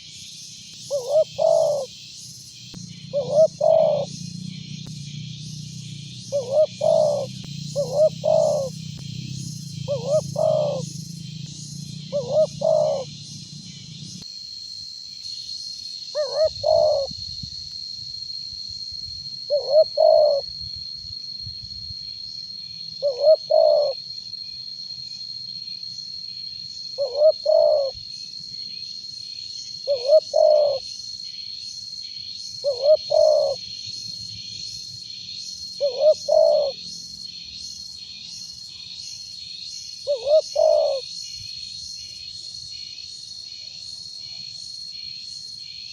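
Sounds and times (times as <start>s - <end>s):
insects trilling: 0.0s - 45.9s
dove cooing: 0.9s - 1.9s, 3.0s - 4.6s, 6.3s - 14.1s, 16.2s - 17.1s, 19.5s - 20.4s, 23.0s - 24.0s, 27.0s - 28.0s, 29.9s - 30.8s, 32.6s - 33.6s, 35.8s - 36.8s, 40.1s - 41.1s.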